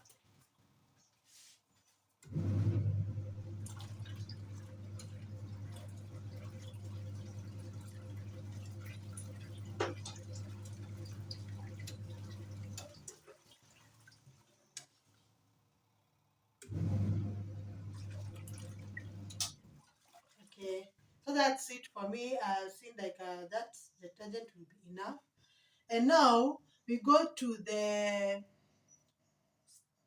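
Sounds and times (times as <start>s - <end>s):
washing machine motor humming: 2.2s - 13.4s, 16.6s - 19.8s
water churning and splashing: 2.4s - 14.6s, 16.8s - 20.8s.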